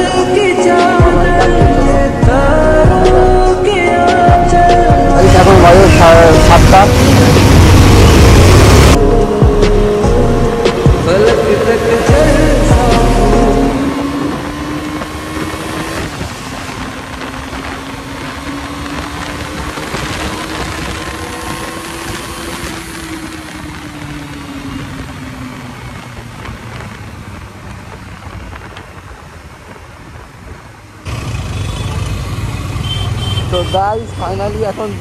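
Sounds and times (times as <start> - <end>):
rushing wind noise: 0.0 - 31.1
motorcycle engine running: 4.3 - 28.1.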